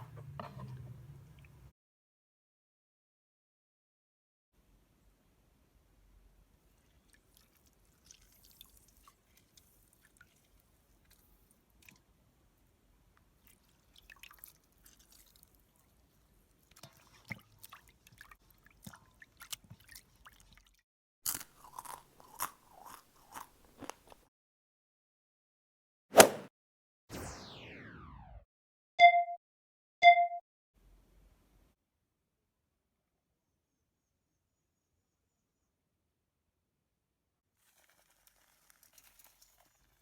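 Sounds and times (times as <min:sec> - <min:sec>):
person chewing crunchy food: 0:21.3 - 0:24.2.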